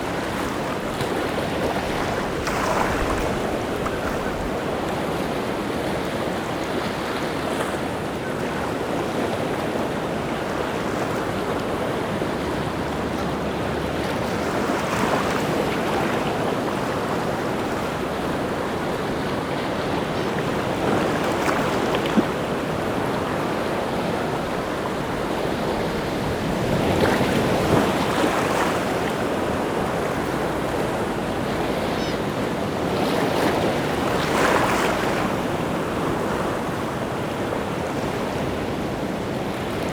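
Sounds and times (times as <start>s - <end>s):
waves breaking: 0.0s - 39.9s
wind: 0.0s - 39.9s.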